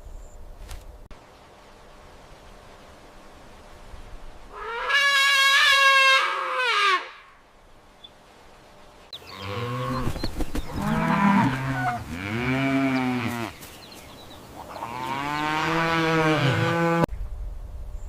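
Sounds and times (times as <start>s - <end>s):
cow mooing: 9.3s - 10.0s, 10.8s - 13.6s, 14.8s - 17.1s.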